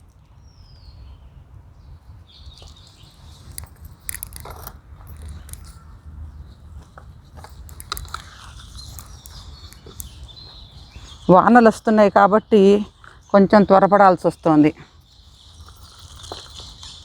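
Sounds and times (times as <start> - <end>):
potting soil crunching by hand: 6.8 - 14.4, 15.2 - 17.0.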